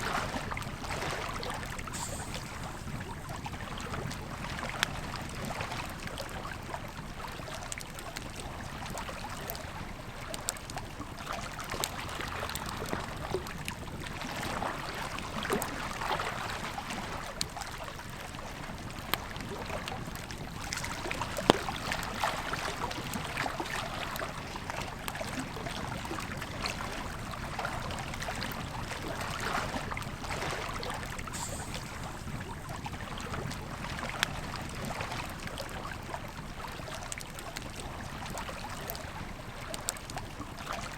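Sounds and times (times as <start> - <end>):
flowing river: 0.0 - 40.9
campfire crackling and popping: 17.2 - 29.2, 29.8 - 40.2.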